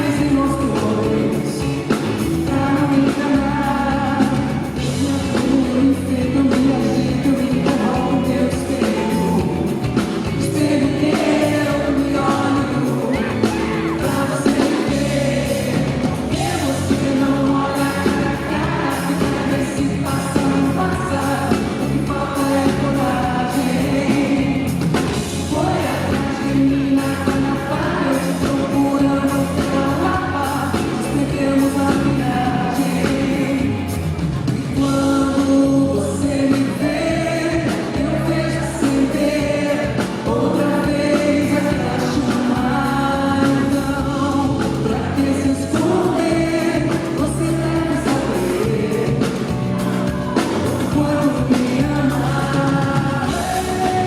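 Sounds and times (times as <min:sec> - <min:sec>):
woman singing: 0:00.0 - 0:09.6, 0:10.2 - 0:24.8, 0:34.6 - 0:54.0
live band with drum beat: 0:00.0 - 0:54.0.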